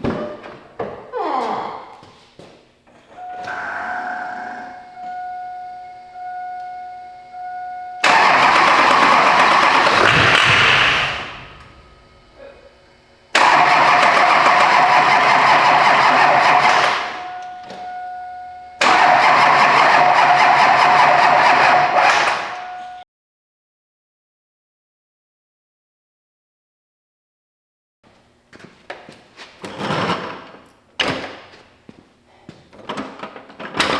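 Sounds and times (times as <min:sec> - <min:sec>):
diesel engine cranking: 0:03.2 - 0:23.0.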